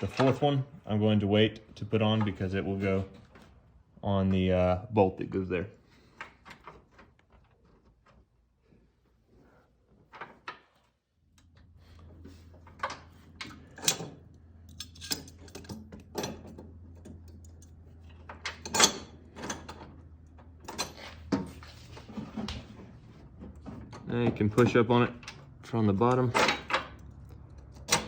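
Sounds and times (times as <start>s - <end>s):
small metal parts clinking: 13.4s - 19.8s.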